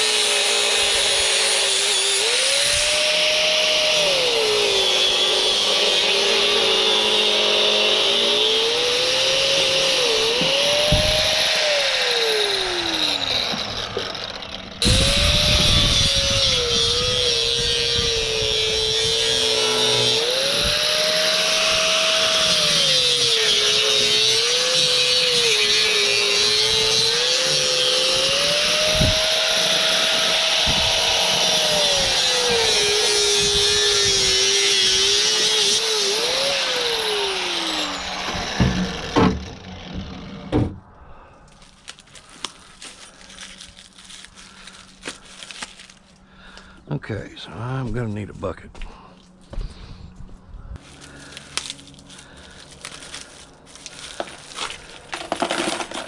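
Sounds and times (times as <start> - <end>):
power tool cutting: 0.0 - 40.7, 52.7 - 56.0.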